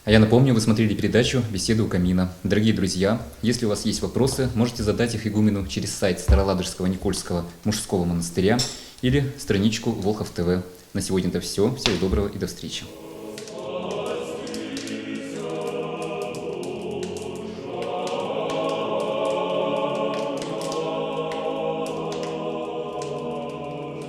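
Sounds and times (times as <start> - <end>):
choir singing sustained chords: 12.8 - 24.0.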